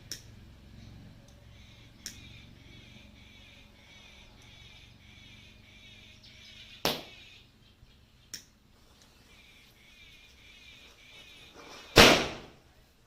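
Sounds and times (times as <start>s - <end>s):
faint steady chirping: 0.0s - 12.0s
firecracker bang: 11.9s - 12.6s.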